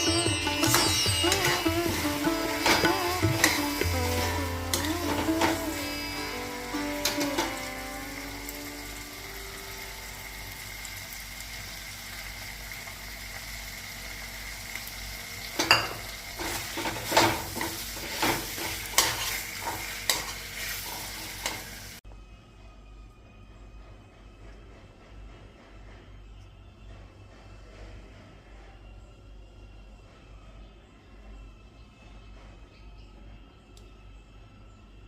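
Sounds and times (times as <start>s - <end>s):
spoon scraping and knocking a pan: 0.0s - 7.7s, 15.6s - 21.7s
curry sizzling in a pan: 0.0s - 22.0s.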